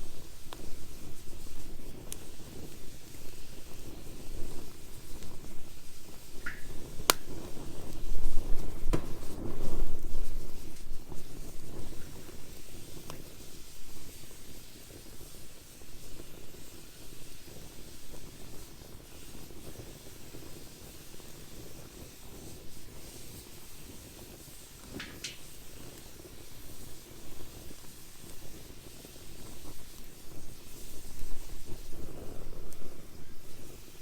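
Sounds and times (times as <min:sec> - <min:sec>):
wood fire rumbling: 0:00.0 - 0:34.0
sharp pop of fire: 0:06.4 - 0:07.6, 0:08.8 - 0:09.6, 0:24.8 - 0:26.0.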